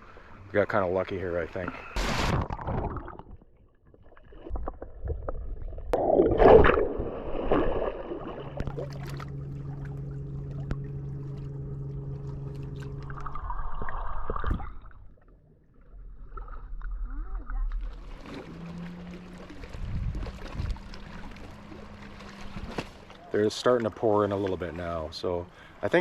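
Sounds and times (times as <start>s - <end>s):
steady engine hum: 8.0s - 13.7s, 17.8s - 26.0s.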